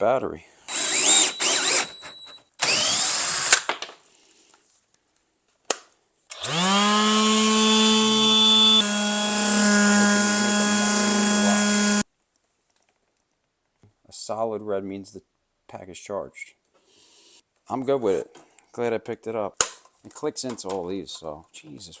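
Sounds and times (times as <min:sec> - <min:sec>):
cordless drill motor whining: 0:00.7 - 0:03.6, 0:06.3 - 0:12.0
drill click: 0:00.7 - 0:03.7, 0:06.3 - 0:12.0.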